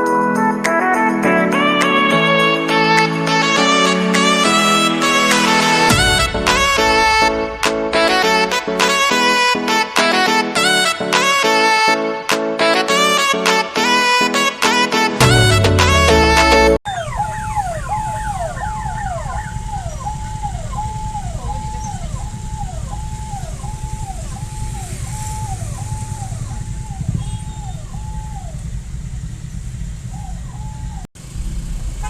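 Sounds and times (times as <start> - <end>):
electronic siren wailing: 15.2 - 28.8, 30.1 - 31.1
low rumble of traffic: 16.9 - 32.0.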